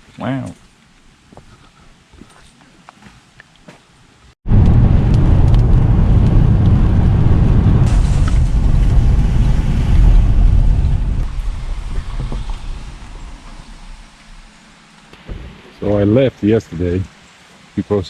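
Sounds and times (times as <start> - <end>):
rainstorm rumble on microphone: 4.5 - 17.2.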